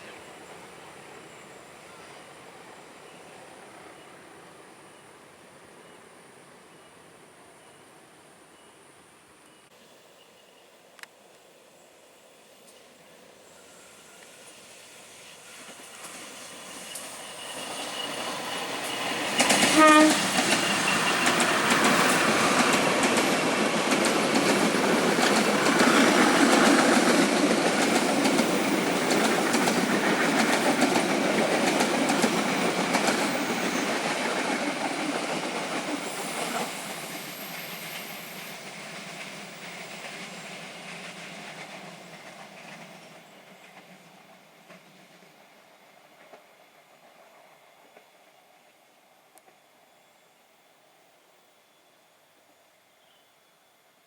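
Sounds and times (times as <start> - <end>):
train wheels clattering over rail joints: 15.6 - 36.8
train horn blast: 19.6 - 21.2.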